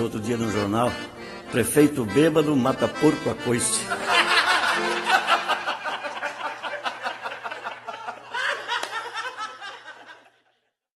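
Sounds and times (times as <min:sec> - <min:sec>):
people laughing: 0:03.7 - 0:10.8.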